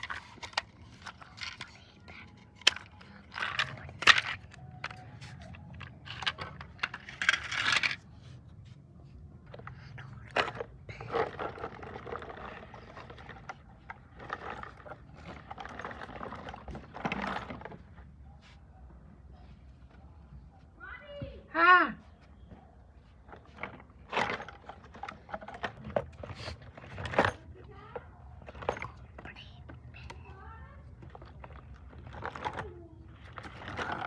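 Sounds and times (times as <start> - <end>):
toy vehicles clicking and knocking: 0.0 - 8.1, 9.3 - 18.1, 23.1 - 34.0.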